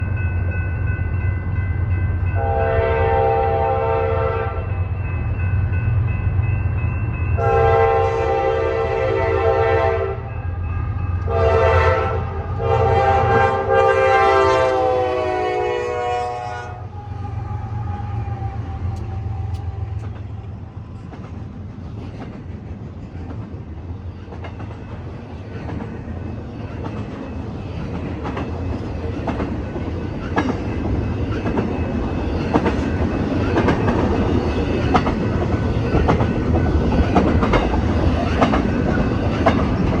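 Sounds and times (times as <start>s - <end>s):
train rumbling by: 0.0s - 40.0s
locomotive horn chord: 2.4s - 4.7s, 7.4s - 10.3s, 11.2s - 17.4s
wheels clicking over rail joints: 18.3s - 40.0s.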